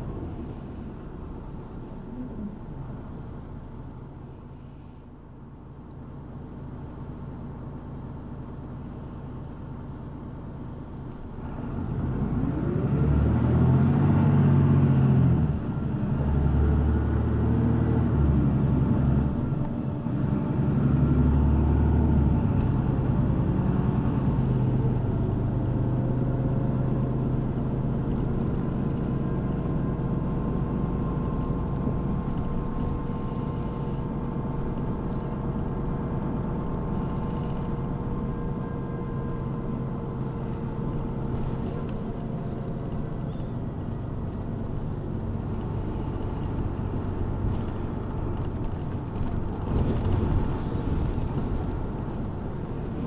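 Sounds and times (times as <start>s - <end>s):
bus diesel engine pulling away: 11.2s - 53.0s.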